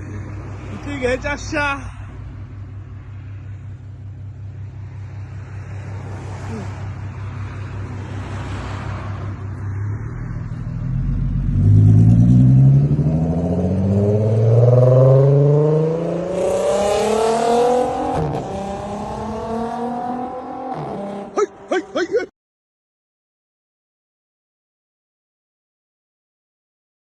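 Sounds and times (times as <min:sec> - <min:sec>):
car engine accelerating: 0:07.9 - 0:22.0.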